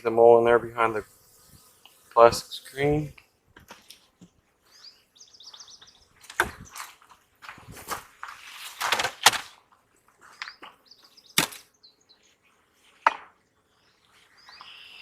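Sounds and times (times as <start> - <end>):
birds chirping: 0.0 - 7.2, 10.2 - 15.0.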